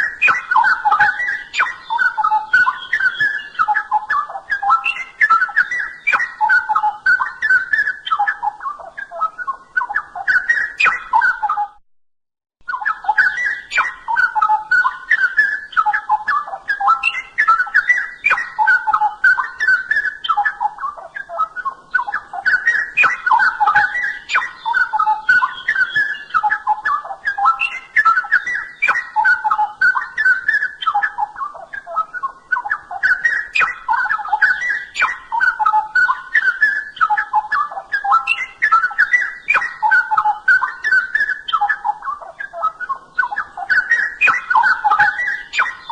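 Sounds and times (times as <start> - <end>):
bulbul singing whistled phrases: 0.0 - 11.8, 12.6 - 45.9.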